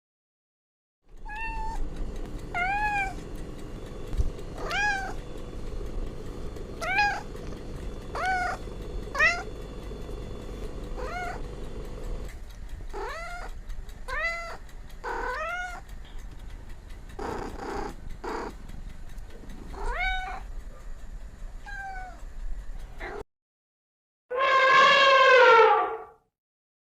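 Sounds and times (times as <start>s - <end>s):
faint steady hum: 1.1s - 23.2s
cat meowing: 1.2s - 1.8s, 2.5s - 3.2s, 4.6s - 5.2s, 6.8s - 7.3s, 8.1s - 9.5s, 11.0s - 11.4s, 13.0s - 15.8s, 19.8s - 20.5s, 21.7s - 22.2s, 24.3s - 26.1s.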